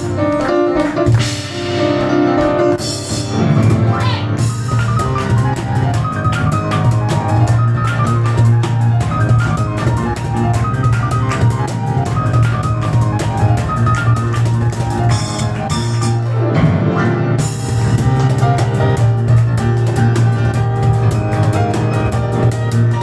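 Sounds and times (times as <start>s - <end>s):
cajon beat: 0.0s - 23.0s
rapid piano: 0.0s - 23.0s.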